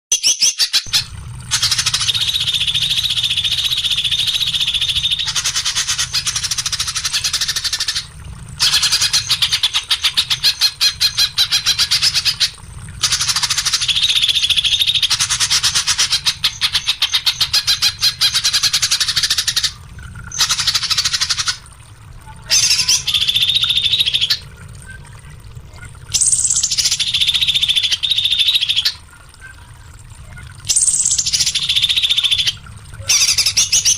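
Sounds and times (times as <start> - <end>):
songbird chirps and trills: 22.2 - 25.1.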